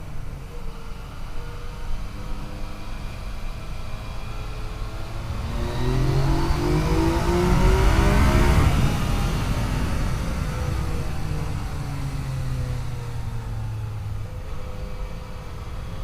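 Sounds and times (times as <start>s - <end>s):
motorcycle engine revving: 4.1s - 15.6s
wind rush: 4.8s - 13.0s.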